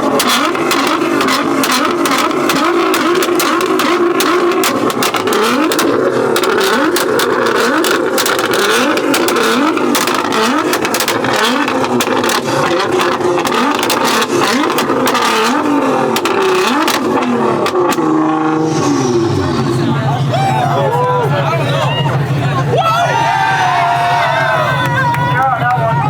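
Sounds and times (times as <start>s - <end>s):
exhaust pops and bangs: 0.0s - 22.6s
car engine revving: 0.0s - 26.0s.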